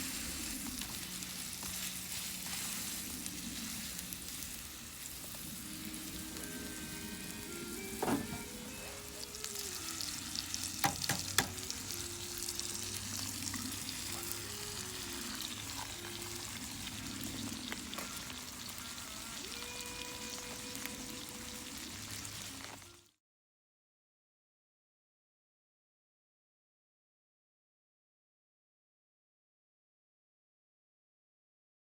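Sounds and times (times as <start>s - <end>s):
food sizzling in a pan: 0.0s - 23.1s
quiet background music: 0.0s - 23.1s.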